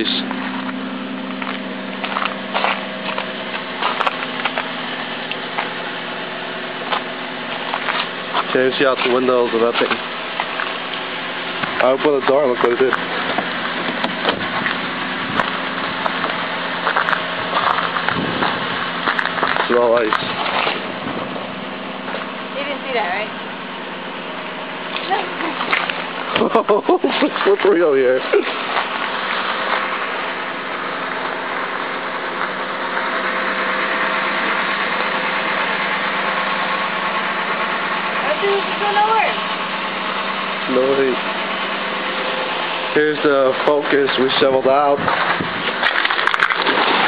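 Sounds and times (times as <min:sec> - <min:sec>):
car engine idling: 0:00.0 - 0:47.0
ice crackling and crunching: 0:06.8 - 0:22.4, 0:24.9 - 0:35.2, 0:43.5 - 0:47.0.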